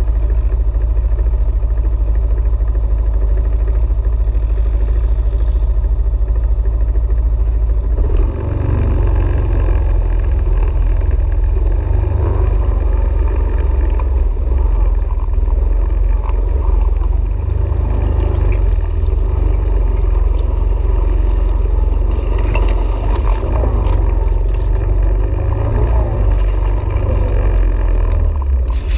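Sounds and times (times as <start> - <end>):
atv engine running: 0.0 - 28.9.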